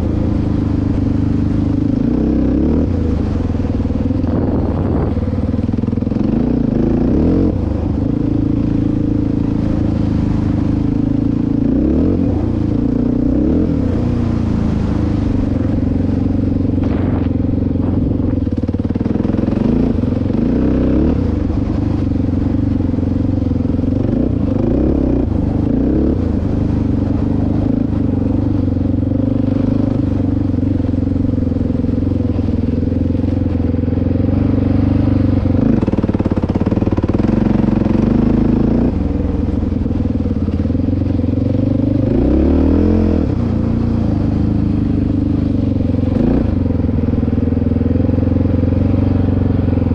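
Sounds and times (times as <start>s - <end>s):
dirt bike engine revving: 0.9s - 39.6s, 40.3s - 49.9s.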